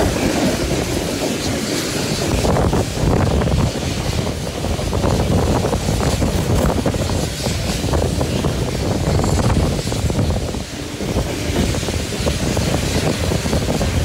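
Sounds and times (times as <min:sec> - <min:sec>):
train wheels rumbling on rails: 0:00.0 - 0:14.0
wind rushing over microphone: 0:00.0 - 0:14.0.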